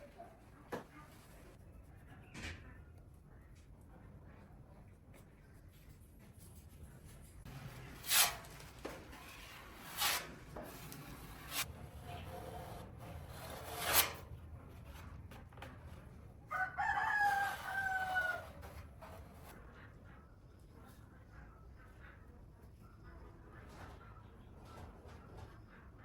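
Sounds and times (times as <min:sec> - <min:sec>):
sharp noisy strokes: 0:07.5 - 0:08.7, 0:09.4 - 0:11.7, 0:12.4 - 0:14.3
rooster crowing: 0:16.5 - 0:18.6.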